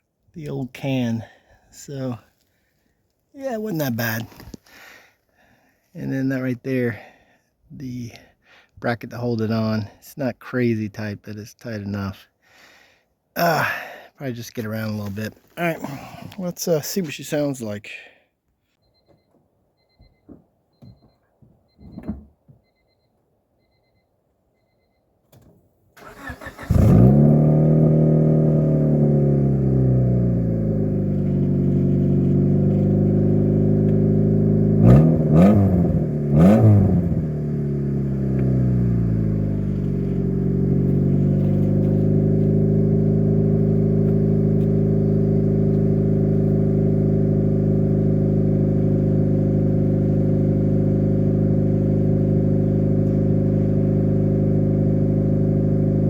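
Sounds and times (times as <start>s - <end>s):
car engine idling and revving: 26.0s - 56.0s.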